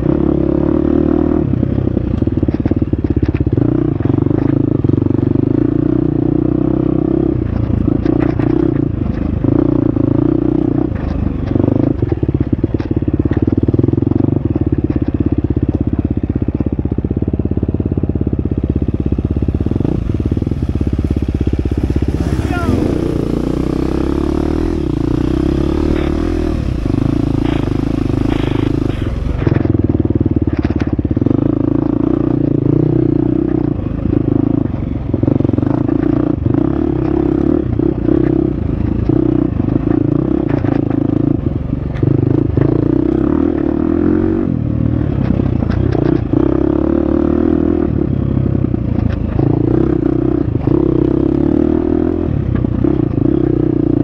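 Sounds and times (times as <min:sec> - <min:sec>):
dirt bike engine revving: 0:18.1 - 0:41.3.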